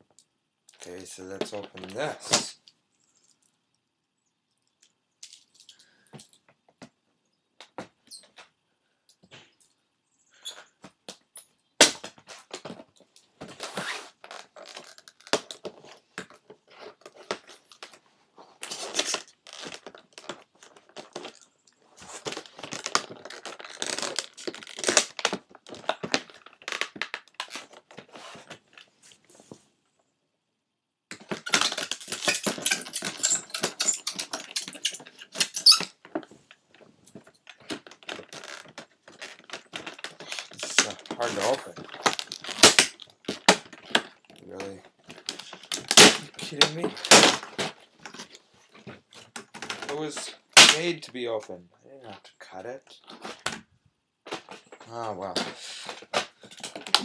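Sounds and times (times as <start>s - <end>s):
packaging tearing and crinkling: 18.6s - 21.4s, 22.0s - 28.5s, 31.2s - 35.8s, 37.6s - 48.3s, 55.3s - 57.0s
packaging clicks and thunks: 31.1s - 36.3s, 37.1s - 50.8s, 55.4s - 57.0s.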